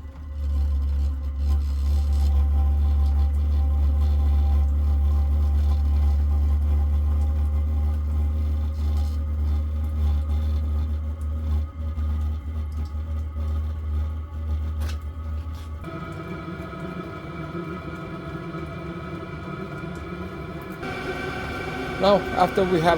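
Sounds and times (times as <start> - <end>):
faint steady tones: 15.8 - 22.9
heater blower low drone: 15.8 - 22.9.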